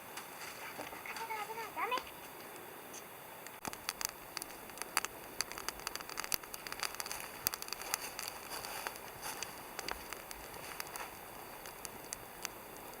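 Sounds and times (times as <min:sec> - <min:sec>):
campfire crackling and popping: 0:03.3 - 0:13.0.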